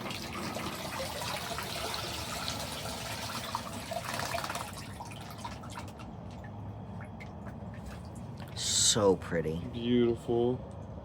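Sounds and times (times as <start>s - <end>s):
water pouring into pond: 0.0s - 6.5s.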